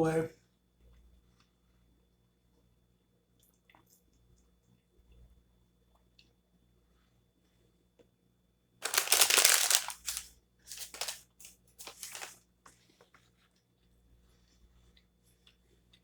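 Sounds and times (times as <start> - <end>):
food wrapper crinkling: 8.8 - 12.4.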